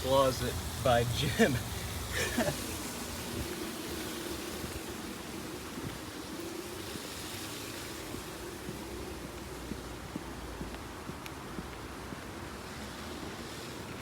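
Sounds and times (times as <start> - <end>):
air conditioning units whooshing: 0.0 - 10.6.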